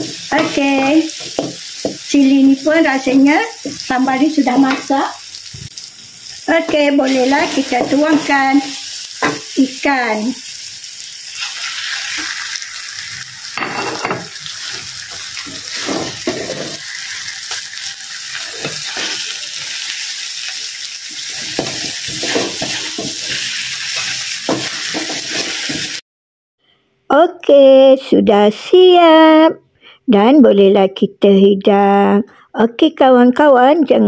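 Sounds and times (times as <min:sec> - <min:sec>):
spatula scraping and knocking pan: 0:00.0 - 0:02.1, 0:06.6 - 0:08.6, 0:13.6 - 0:17.7, 0:21.2 - 0:26.0
sauce sizzling in a wok: 0:00.0 - 0:26.0.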